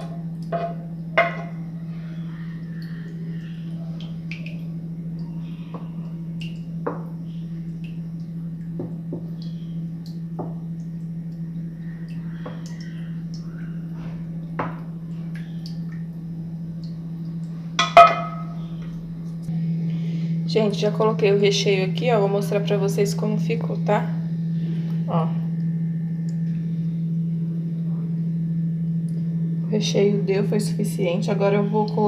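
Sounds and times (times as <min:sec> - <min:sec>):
steady low hum: 0:00.0 - 0:32.0
utensil clinking on dish: 0:17.8 - 0:18.5.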